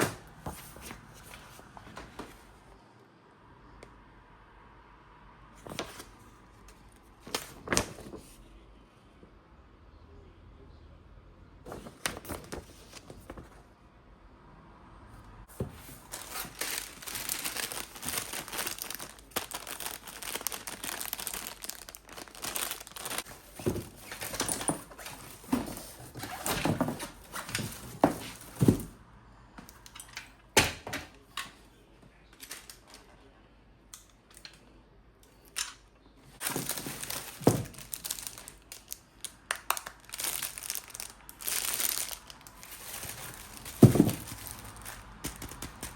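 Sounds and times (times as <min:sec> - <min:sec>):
plastic crinkling and rustling: 0:15.5 - 0:28.9, 0:36.4 - 0:45.9.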